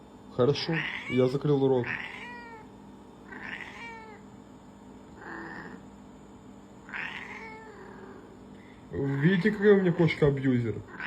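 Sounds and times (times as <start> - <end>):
cat meowing: 0.6 - 2.7, 3.3 - 4.3, 5.2 - 5.8, 6.9 - 8.2.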